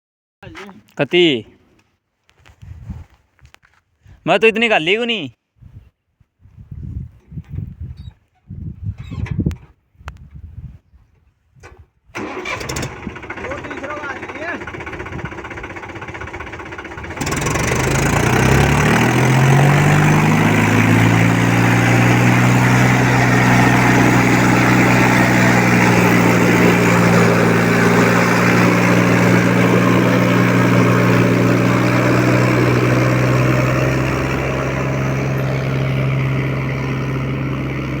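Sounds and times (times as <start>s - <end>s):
tractor diesel engine revving: 12.2s - 38.0s.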